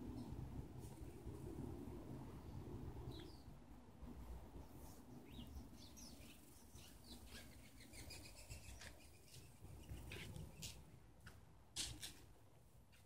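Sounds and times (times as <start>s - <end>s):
small birds chirping: 2.4s - 3.6s, 4.6s - 10.9s.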